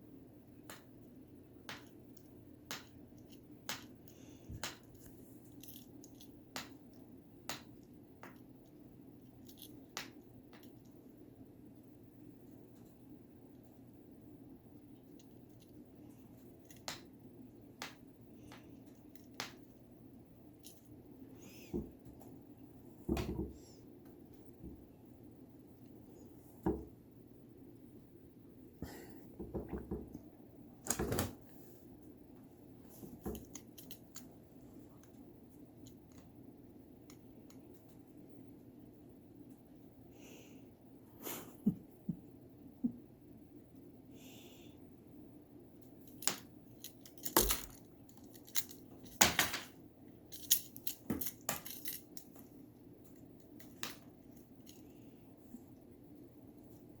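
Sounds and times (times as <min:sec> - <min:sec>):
pet playing with toys: 0:50.3 - 0:52.6.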